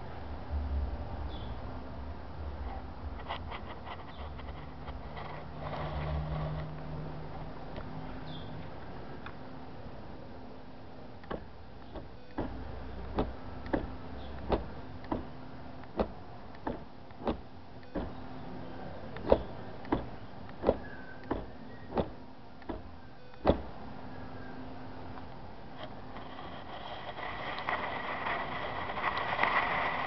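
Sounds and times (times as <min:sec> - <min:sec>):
faint steady hum: 0:00.0 - 0:30.0
sharp clicks or knocks: 0:11.2 - 0:18.2, 0:19.1 - 0:23.8.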